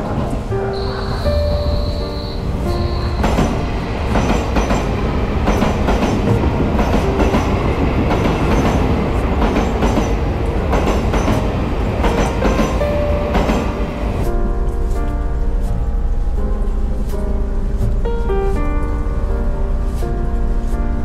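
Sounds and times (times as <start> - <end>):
wheels clacking over rail joints: 0.0 - 14.8
train wheels rumbling on rails: 0.0 - 21.0.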